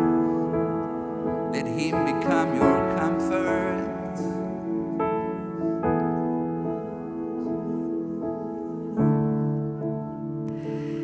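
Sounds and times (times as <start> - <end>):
soft worship music on keyboard: 0.0 - 11.0.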